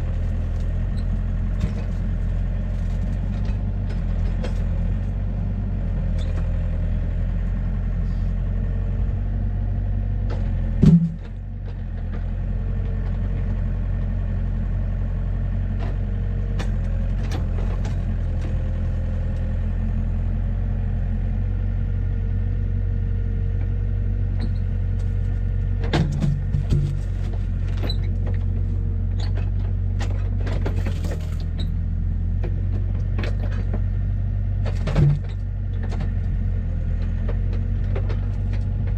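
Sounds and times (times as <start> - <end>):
large engine idling: 0.0 - 38.9.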